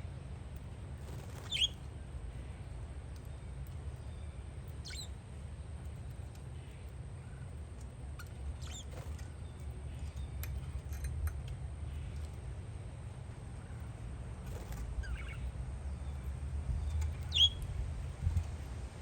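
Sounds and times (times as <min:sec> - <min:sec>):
parakeet chirps: 0:01.1 - 0:01.8, 0:04.8 - 0:05.2, 0:08.2 - 0:09.2, 0:14.6 - 0:17.8
wind rumbling on microphone: 0:16.2 - 0:19.0.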